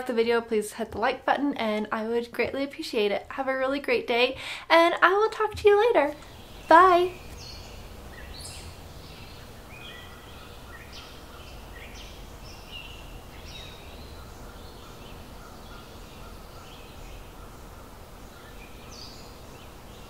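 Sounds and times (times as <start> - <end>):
birds chirping: 5.3 - 20.0.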